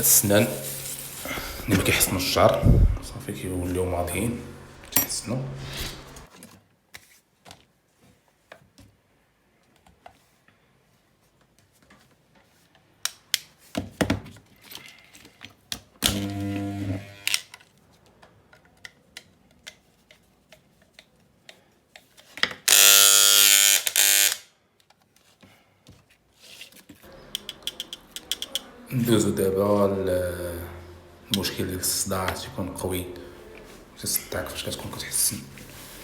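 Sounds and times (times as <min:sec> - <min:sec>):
electric hair clipper buzzing: 0:16.0 - 0:17.5, 0:22.7 - 0:24.5.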